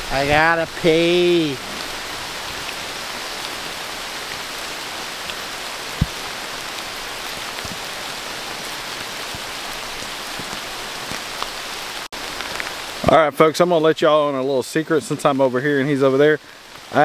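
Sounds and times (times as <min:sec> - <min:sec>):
steady rain falling: 0:00.0 - 0:17.0
dull low thump: 0:05.9 - 0:06.4.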